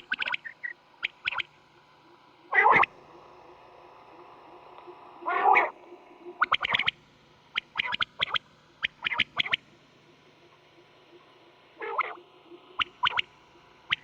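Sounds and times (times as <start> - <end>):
quail calling: 2.5 - 2.9, 5.2 - 5.7, 7.6 - 9.6, 11.8 - 12.2.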